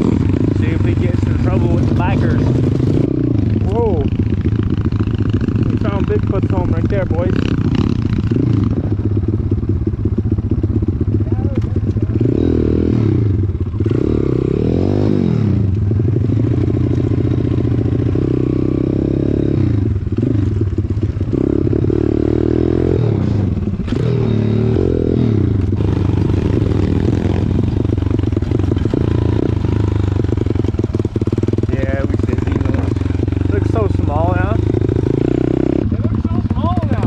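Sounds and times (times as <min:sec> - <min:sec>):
motorbike engine revving: 0:00.0 - 0:37.0.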